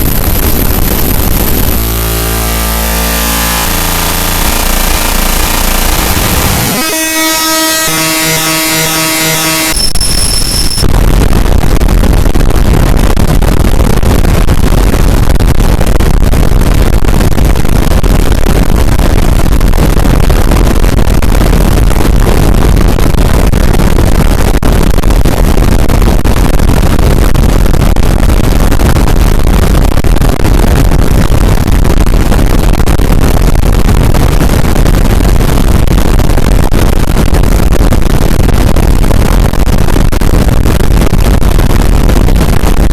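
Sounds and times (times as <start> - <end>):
high tones: 0.0 - 10.9
harsh distorted noise music: 0.0 - 35.5.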